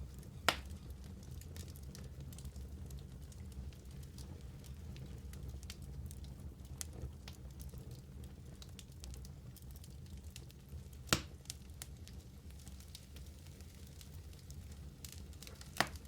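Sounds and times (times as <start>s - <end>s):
fire crackling in fireplace: 0.0s - 16.0s
sharp pop of fire: 0.5s - 0.8s, 11.1s - 11.4s, 15.8s - 16.0s.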